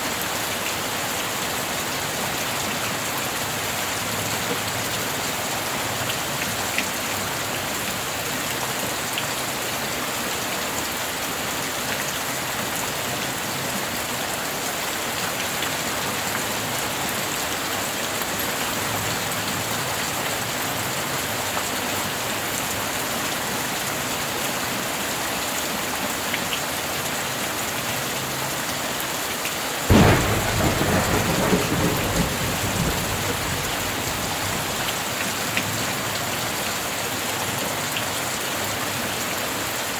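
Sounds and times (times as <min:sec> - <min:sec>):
heavy rain falling: 0:00.1 - 0:39.9
close thunderclap: 0:29.9 - 0:35.4.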